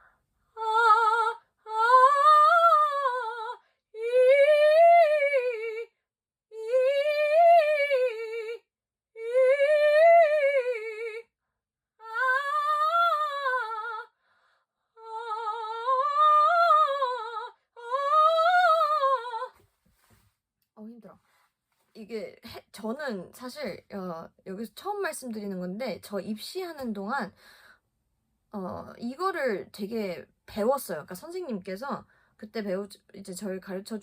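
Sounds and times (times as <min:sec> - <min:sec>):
woman breathing: 0:14.2 - 0:14.9, 0:27.3 - 0:27.9.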